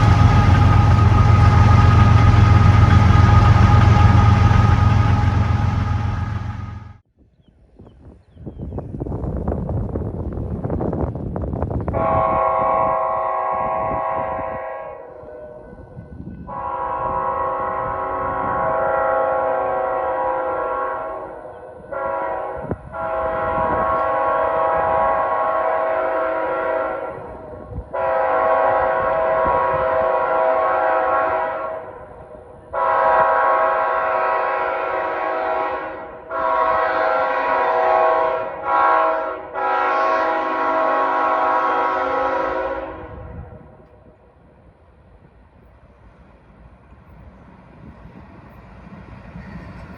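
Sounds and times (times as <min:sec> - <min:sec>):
locomotive air horn blasts: 0:00.0 - 0:06.9, 0:12.0 - 0:15.8, 0:16.5 - 0:32.0, 0:32.7 - 0:43.6
faint train rumble: 0:00.0 - 0:07.1, 0:07.9 - 0:49.9.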